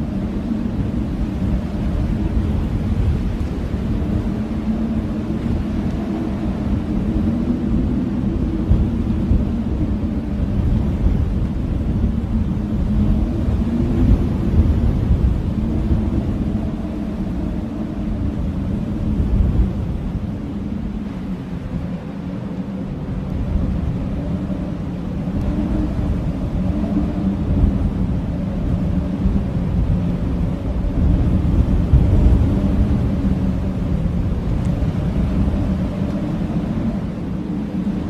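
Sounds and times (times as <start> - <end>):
blizzard wind howling: 0.0 - 38.0.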